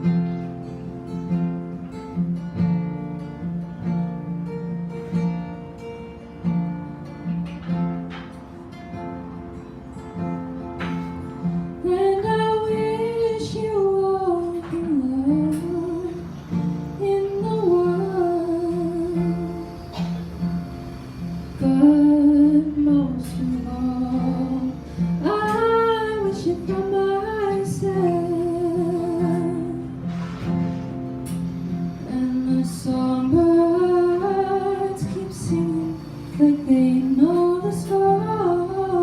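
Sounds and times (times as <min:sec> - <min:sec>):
strummed acoustic guitar: 0:00.0 - 0:39.0
woman singing a slow ballad: 0:11.8 - 0:19.9, 0:21.5 - 0:30.3, 0:31.5 - 0:39.0.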